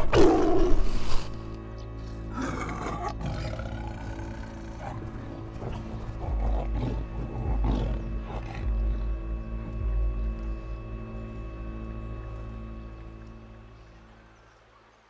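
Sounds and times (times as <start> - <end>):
film score sustained tones: 0.0 - 15.0
tiger roar: 2.3 - 9.0
low rumble: 3.8 - 14.2.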